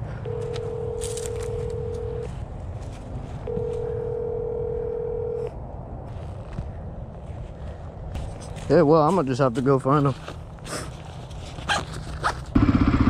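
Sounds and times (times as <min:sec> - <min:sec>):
telephone ringing tone: 0:00.2 - 0:02.3, 0:03.5 - 0:05.6.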